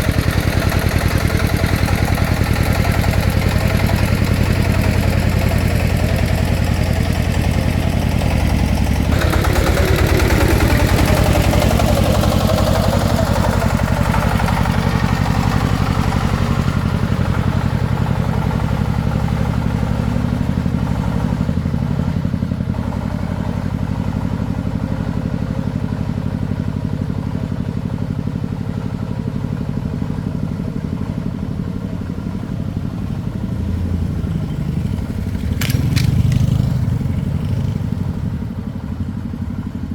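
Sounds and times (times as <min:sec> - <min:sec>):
rattling noise: 0:00.0 - 0:12.9, 0:34.8 - 0:37.3
engine running: 0:00.0 - 0:39.9.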